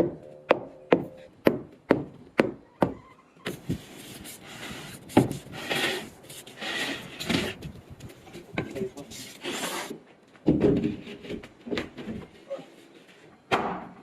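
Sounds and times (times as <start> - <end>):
scraping rubbing noise: 3.5 - 9.9.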